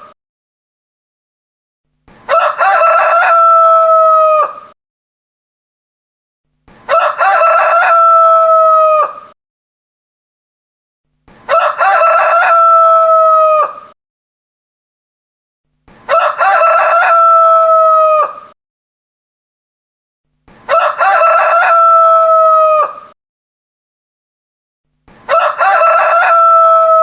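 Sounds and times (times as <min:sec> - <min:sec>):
rooster crowing: 0:02.3 - 0:04.7, 0:06.9 - 0:09.3, 0:11.5 - 0:14.0, 0:16.1 - 0:18.6, 0:20.7 - 0:23.1, 0:25.3 - 0:27.0.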